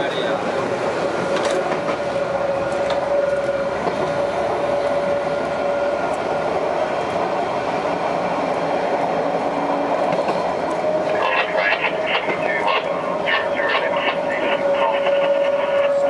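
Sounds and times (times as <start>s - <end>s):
train wheels rumbling: 0.0s - 16.0s
steady whine: 10.7s - 16.0s.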